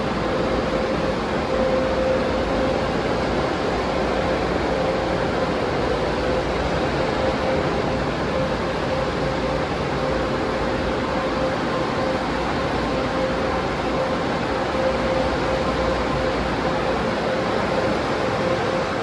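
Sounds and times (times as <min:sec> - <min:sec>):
constant hum: 0:00.0 - 0:19.0.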